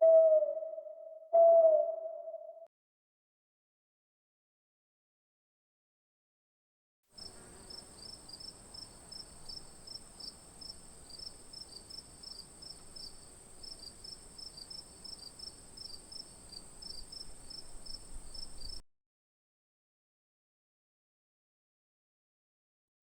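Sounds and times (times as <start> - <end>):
insects chirping: 7.2 - 18.8.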